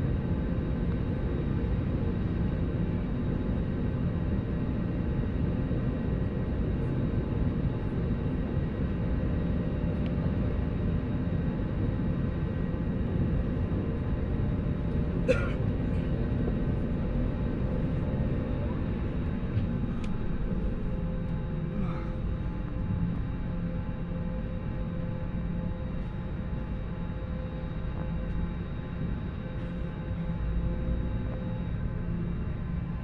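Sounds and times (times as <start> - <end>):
airliner cabin rumble: 11.4 - 33.0.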